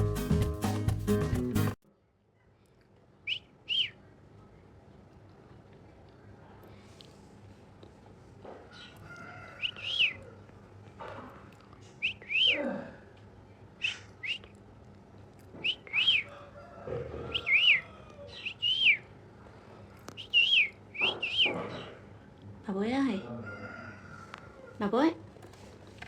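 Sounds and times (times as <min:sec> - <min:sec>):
parrot whistling: 0:03.3 - 0:04.0, 0:09.6 - 0:10.2, 0:12.0 - 0:12.6, 0:13.8 - 0:14.4, 0:15.6 - 0:16.3, 0:17.3 - 0:19.1, 0:20.2 - 0:21.9
parrot rasping calls: 0:17.2 - 0:19.0.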